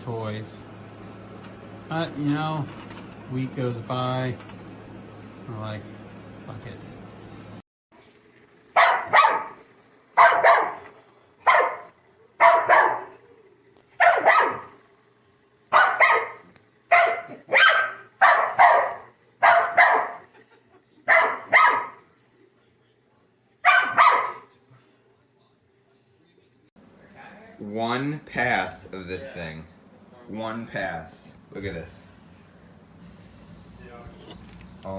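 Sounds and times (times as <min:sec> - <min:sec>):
dog barking: 0:08.8 - 0:09.6, 0:10.2 - 0:13.2, 0:14.0 - 0:14.7, 0:15.7 - 0:20.3, 0:21.1 - 0:22.0, 0:23.6 - 0:24.5.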